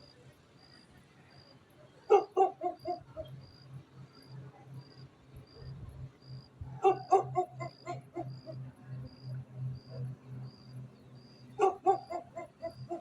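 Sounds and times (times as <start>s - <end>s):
dog barking: 2.1s - 3.0s, 6.8s - 8.3s, 11.6s - 13.0s.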